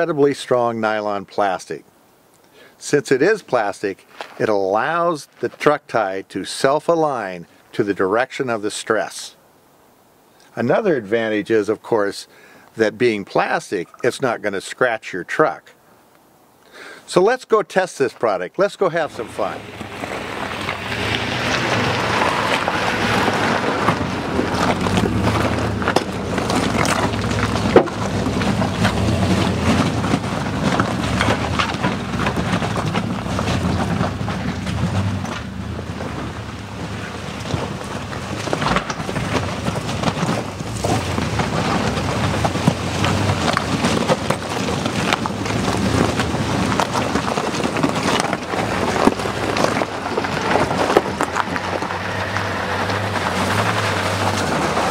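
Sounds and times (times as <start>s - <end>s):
truck engine and road rumble: 18.0s - 54.9s
knocks and rattles from bumps: 19.1s - 54.9s.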